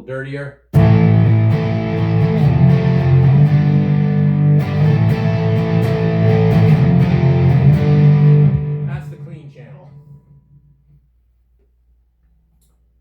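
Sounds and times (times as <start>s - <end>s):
overdriven electric guitar chords: 0.8s - 11.0s.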